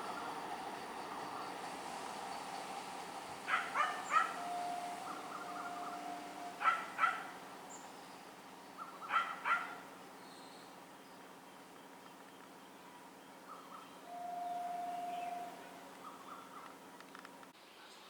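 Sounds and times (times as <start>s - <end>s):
background noise: 0.0s - 18.0s
dog barking: 3.5s - 4.5s, 6.6s - 7.4s, 8.8s - 9.9s.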